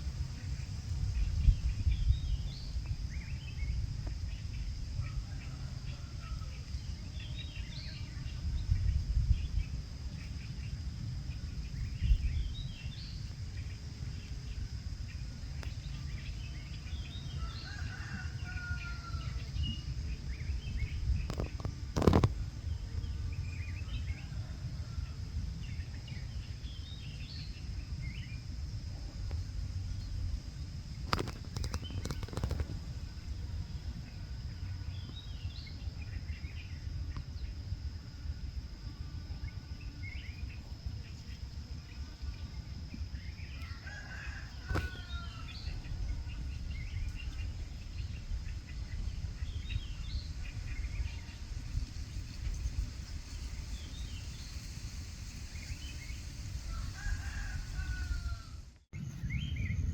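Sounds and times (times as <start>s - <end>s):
steady low rumble: 0.0s - 17.6s, 19.2s - 43.6s, 44.5s - 57.0s
small birds chirping: 0.1s - 23.9s, 30.9s - 32.8s.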